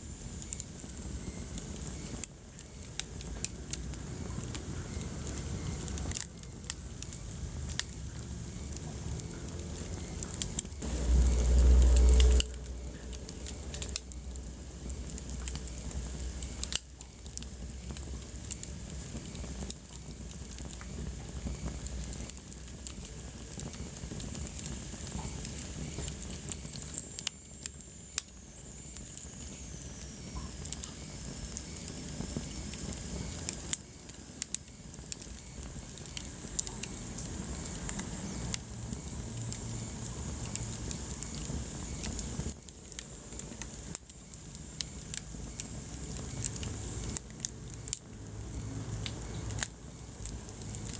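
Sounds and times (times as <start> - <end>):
wood fire crackling and popping: 0.0 - 50.9
loud low rumble: 10.8 - 15.1.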